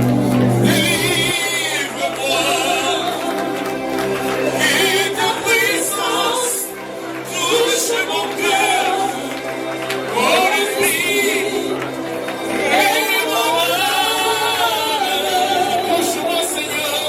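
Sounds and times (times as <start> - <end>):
held chords: 0.0 - 16.7
gospel worship singing: 0.0 - 17.0.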